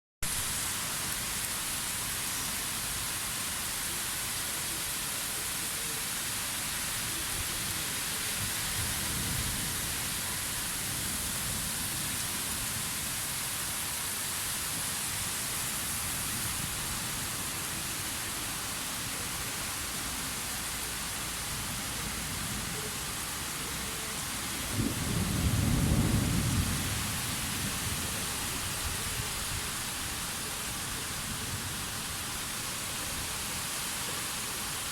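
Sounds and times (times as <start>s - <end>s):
rain falling: 0.2s - 34.9s
thunder rumble: 24.6s - 28.1s.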